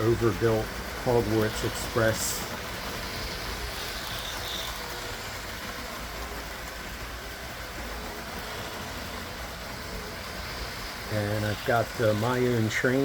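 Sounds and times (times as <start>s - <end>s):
toy train motors whirring: 0.0s - 13.0s.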